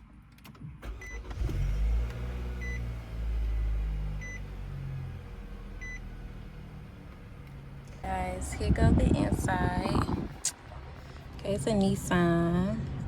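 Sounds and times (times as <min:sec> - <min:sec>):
low car rumble: 0:00.0 - 0:13.0
car warning chime: 0:02.6 - 0:04.5, 0:05.8 - 0:06.1.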